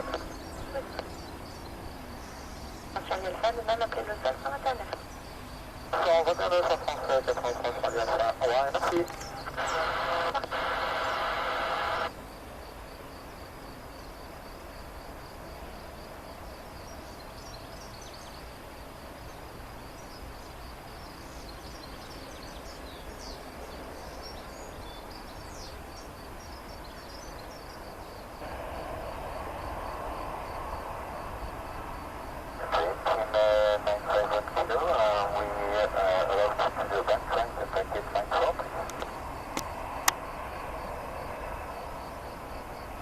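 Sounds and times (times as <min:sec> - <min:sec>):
radio transmission: 0:00.0 - 0:01.2, 0:02.9 - 0:05.2, 0:05.9 - 0:12.1, 0:28.4 - 0:29.0, 0:32.5 - 0:39.3
birds chirping: 0:00.0 - 0:12.1, 0:19.2 - 0:28.4, 0:32.5 - 0:39.5
insect trill: 0:00.0 - 0:43.0
steady low background noise: 0:00.0 - 0:43.0.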